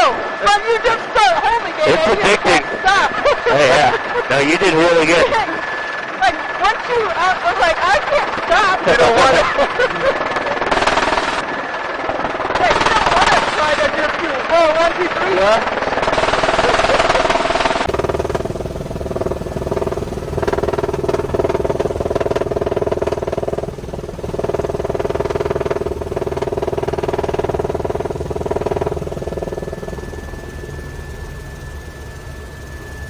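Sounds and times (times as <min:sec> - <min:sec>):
helicopter droning: 0:00.0 - 0:33.0
thin high whine: 0:17.8 - 0:33.0.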